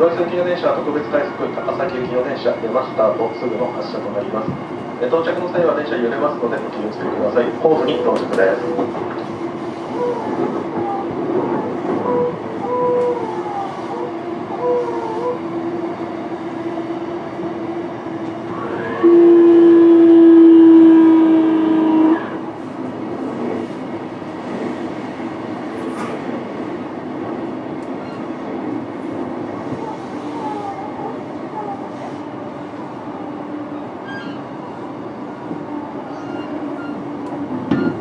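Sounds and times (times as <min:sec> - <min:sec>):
train horn: 0:18.5 - 0:22.5.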